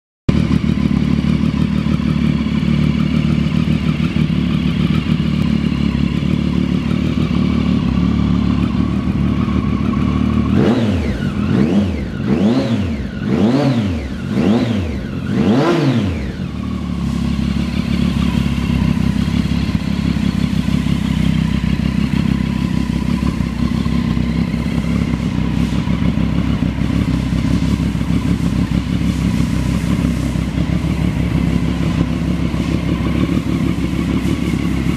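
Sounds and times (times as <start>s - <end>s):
motorcycle engine idling and revving: 0.3s - 34.9s.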